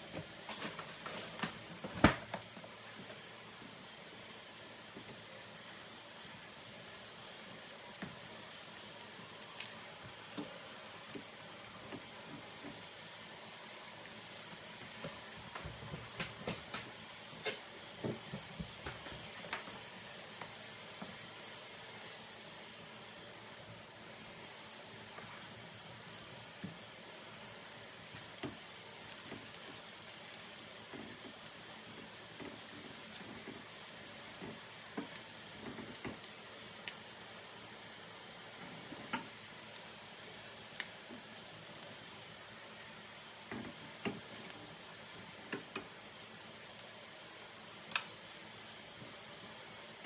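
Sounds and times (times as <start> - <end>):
food sizzling in a frying pan: 0.0 - 50.0
tongs clicking on pan: 47.9 - 48.1.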